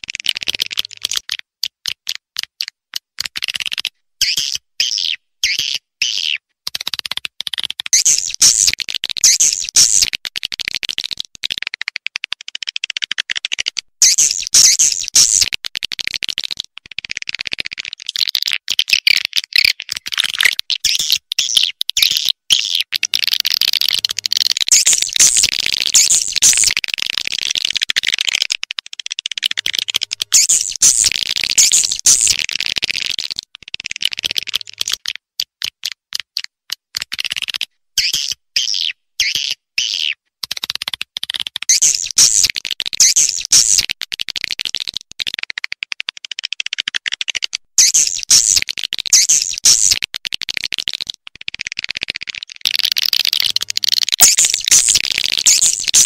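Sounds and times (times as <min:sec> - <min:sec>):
swiftlets twittering: 0:23.2 - 0:26.8, 0:29.6 - 0:32.4, 0:53.3 - 0:56.0.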